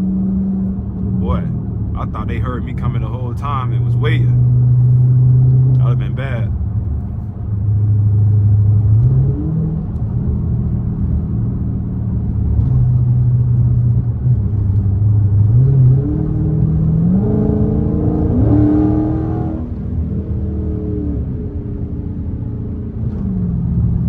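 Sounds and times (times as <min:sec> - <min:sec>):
car engine exhaust revving: 0:12.3 - 0:24.0.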